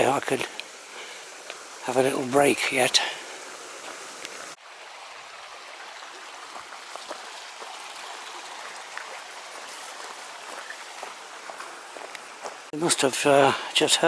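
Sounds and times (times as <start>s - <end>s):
stream of water rushing: 0.0s - 14.0s
faint ticks: 1.4s - 1.6s, 12.0s - 12.3s.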